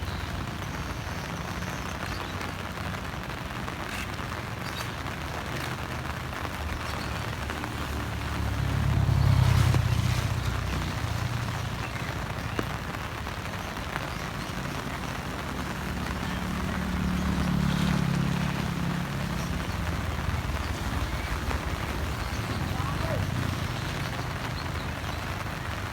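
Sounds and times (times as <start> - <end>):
heavy rain hissing: 0.0 - 25.9
vehicle engine passing: 4.9 - 25.6.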